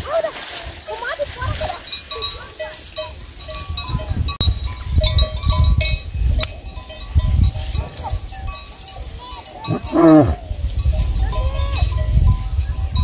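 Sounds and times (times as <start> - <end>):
livestock bells clanking: 0.9 - 13.0.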